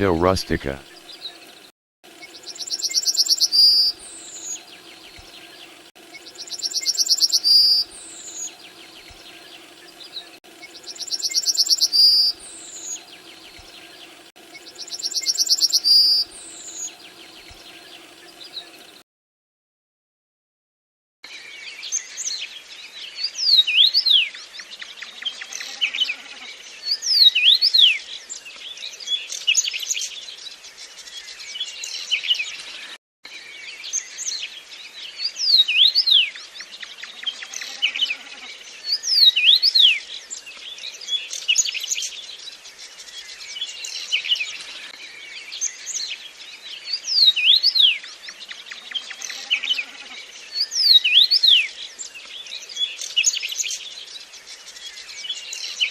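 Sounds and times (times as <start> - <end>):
songbirds chirping and whistling: 2.2 - 19.0, 38.6 - 49.7, 50.3 - 55.9.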